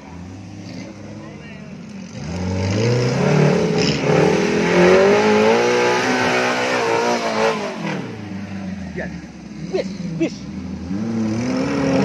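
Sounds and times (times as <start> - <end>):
engine revving hard: 2.0 - 8.3, 9.6 - 12.0.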